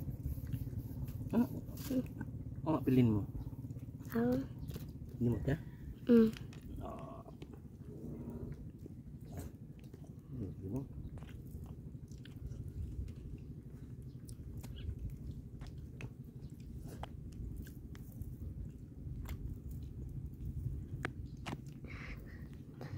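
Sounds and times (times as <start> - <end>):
steady low rumble: 0.0 - 22.9
person chewing: 11.0 - 22.9.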